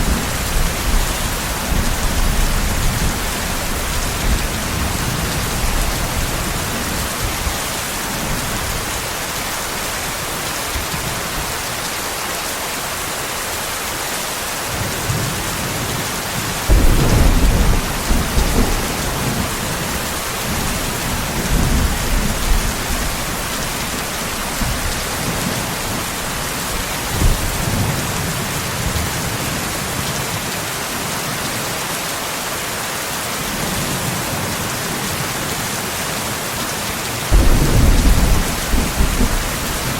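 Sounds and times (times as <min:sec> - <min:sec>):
thunder clap and rumbles: 0:00.0 - 0:08.7, 0:16.7 - 0:29.3, 0:37.3 - 0:39.9
heavy rain: 0:00.0 - 0:39.9.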